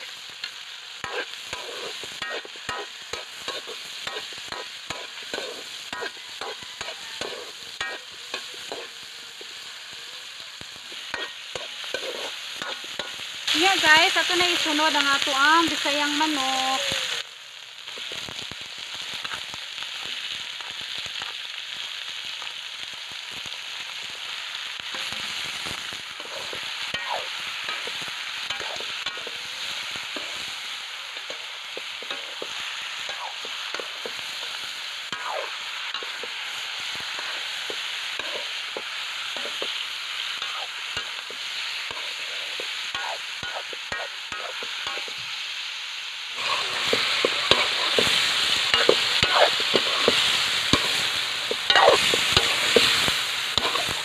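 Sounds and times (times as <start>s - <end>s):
chicken sizzling in hot oil: 0.0s - 54.0s
spatula scraping pan: 1.0s - 9.0s, 11.0s - 13.2s, 26.2s - 29.4s, 46.4s - 54.0s.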